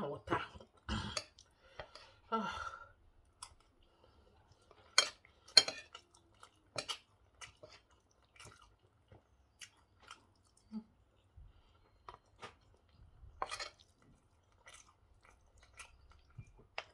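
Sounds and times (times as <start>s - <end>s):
quiet chewing: 3.1s - 16.9s
cutlery clinking on a dish: 4.9s - 6.0s, 13.4s - 13.9s.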